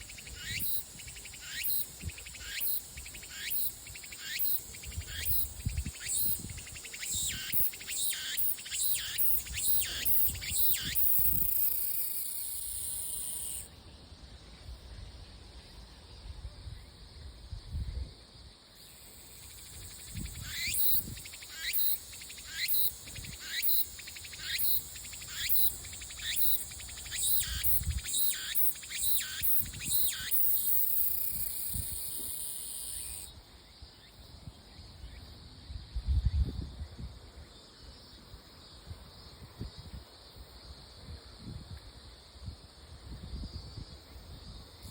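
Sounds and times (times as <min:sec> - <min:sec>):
cicada singing: 0:00.0 - 0:13.8, 0:18.8 - 0:35.4.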